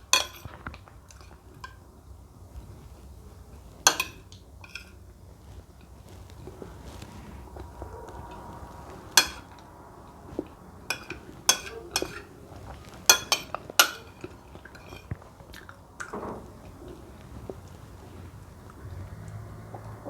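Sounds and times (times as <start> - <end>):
cutlery clinking on a plate: 0.0 - 1.9, 3.5 - 5.0, 5.8 - 9.6, 10.3 - 18.3
chewing: 2.6 - 20.0.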